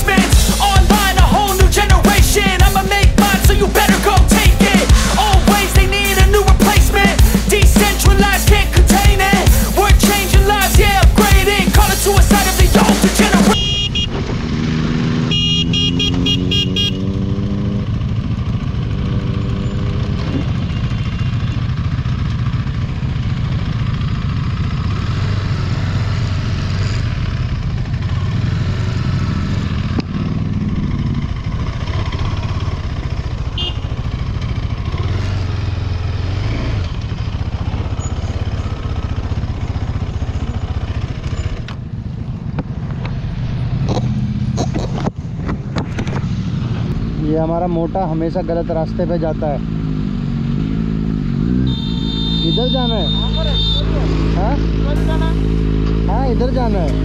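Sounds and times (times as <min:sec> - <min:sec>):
motorcycle engine running: 0:00.0 - 0:57.0
wind and road noise: 0:13.5 - 0:57.0.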